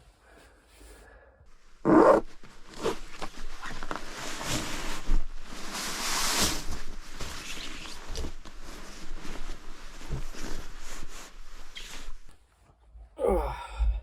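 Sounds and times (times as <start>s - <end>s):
fabric and gear rustling: 1.5s - 12.5s.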